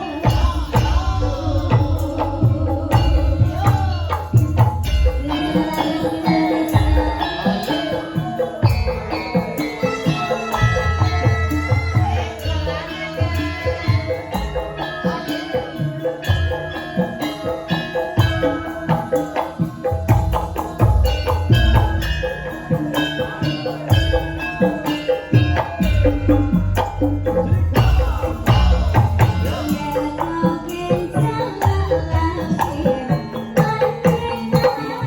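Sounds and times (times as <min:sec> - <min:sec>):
bass: 0:00.0 - 0:06.1, 0:16.2 - 0:33.3
hand drum and tambourine rhythm: 0:00.0 - 0:35.0
sustained melody line: 0:00.0 - 0:35.0.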